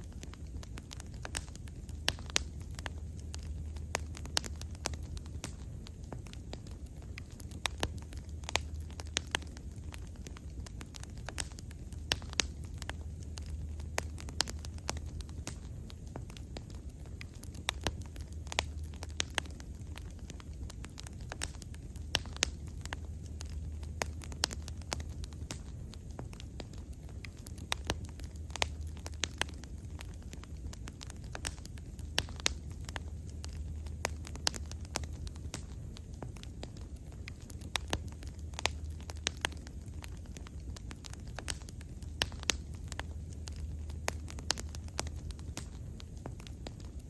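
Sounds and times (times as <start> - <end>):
steady low rumble: 0.0 - 47.0
wood fire crackling: 0.0 - 47.0.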